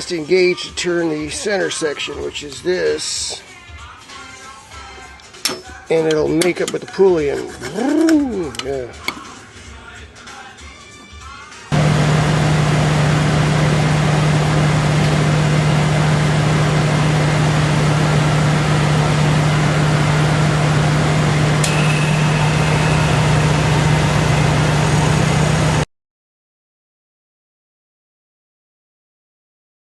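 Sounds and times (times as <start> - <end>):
car engine and ac compressor humming: 11.7 - 25.8.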